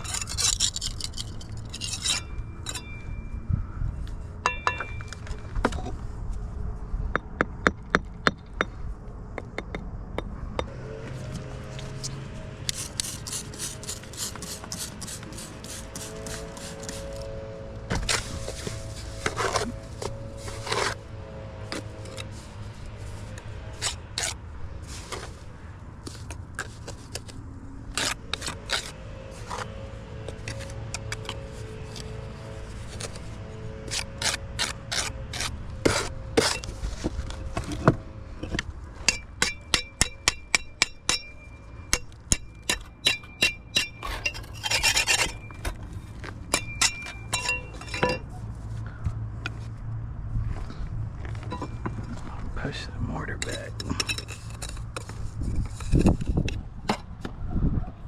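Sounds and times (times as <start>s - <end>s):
trowel scraping mortar: 0.0s - 2.9s, 11.2s - 17.3s, 17.9s - 21.0s, 21.7s - 25.4s, 26.0s - 37.8s, 42.6s - 48.3s, 53.3s - 56.6s
trowel tapping bricks: 39.1s - 45.8s, 46.5s - 48.3s.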